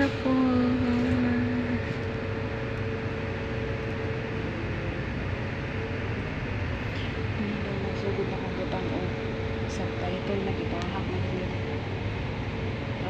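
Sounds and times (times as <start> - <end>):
bus engine and road rumble: 0.0 - 13.0
faint whine: 0.0 - 13.0.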